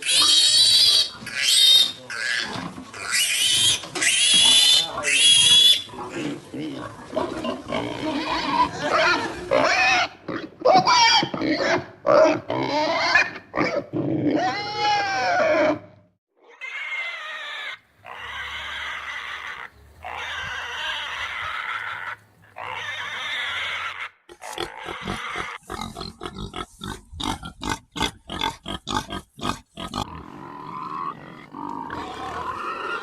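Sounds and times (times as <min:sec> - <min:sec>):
pigs grunting: 0:00.0 - 0:17.4, 0:18.0 - 0:33.0.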